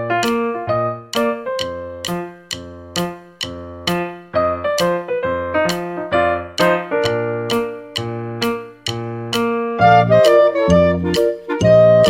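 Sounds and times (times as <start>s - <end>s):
keyboard melody: 0.0s - 12.0s.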